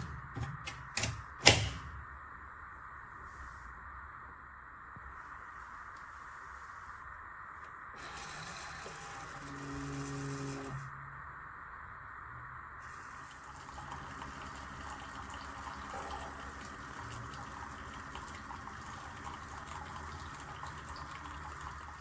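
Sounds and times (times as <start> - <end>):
liquid running into a cup: 12.8 - 22.0.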